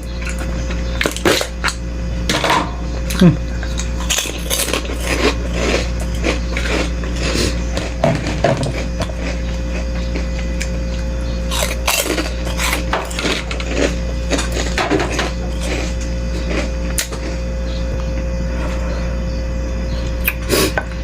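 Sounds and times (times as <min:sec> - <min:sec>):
steady low hum: 0:00.0 - 0:21.0
person eating soup: 0:20.2 - 0:20.9.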